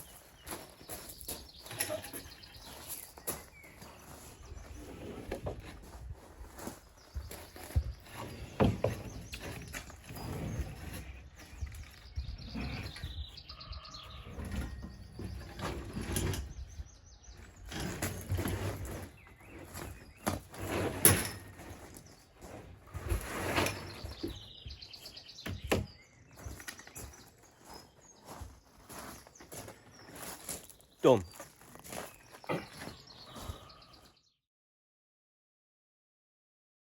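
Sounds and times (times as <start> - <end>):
birds chirping: 0.0 - 34.3
timber knocks and scrapes: 0.6 - 29.2.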